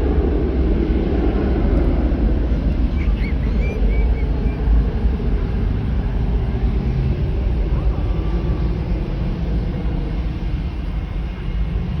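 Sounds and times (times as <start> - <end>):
jet engines deep rumble: 0.0 - 12.0.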